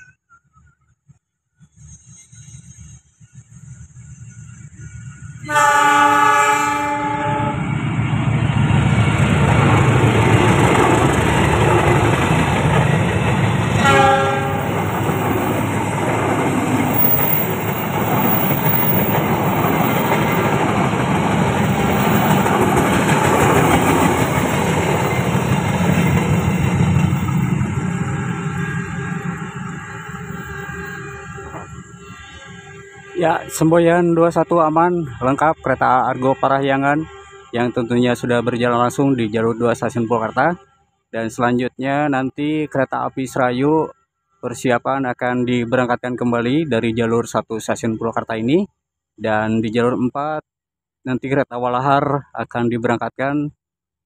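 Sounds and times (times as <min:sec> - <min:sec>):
locomotive horn blasts: 0:05.4 - 0:07.6, 0:13.7 - 0:14.9, 0:28.0 - 0:34.0, 0:34.9 - 0:38.0.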